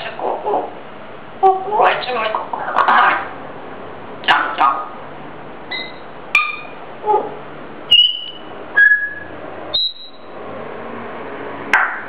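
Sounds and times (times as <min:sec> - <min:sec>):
parrot whistling: 0:05.7 - 0:07.3, 0:07.9 - 0:10.4.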